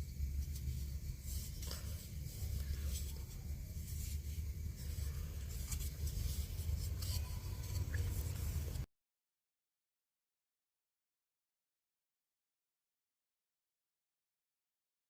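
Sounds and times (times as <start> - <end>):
steady low hum: 0.0 - 8.9
tool scraping on wood: 0.6 - 8.8.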